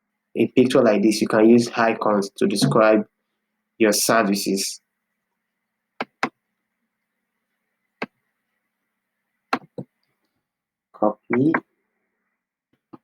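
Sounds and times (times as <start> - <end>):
computer mouse clicking: 6.0 - 6.4.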